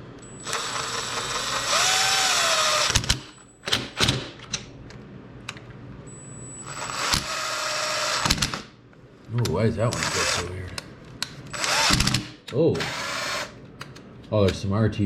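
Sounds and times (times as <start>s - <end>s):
power drill driving bolts: 0.4s - 3.3s, 6.7s - 8.6s, 11.5s - 13.5s.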